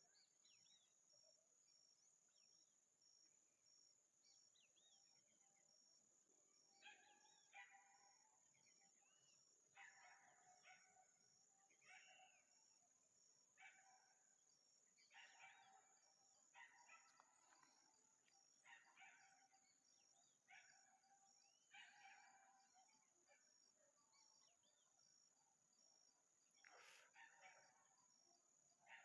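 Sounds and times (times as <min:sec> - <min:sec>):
faint bird calls: 0:26.6 - 0:28.1.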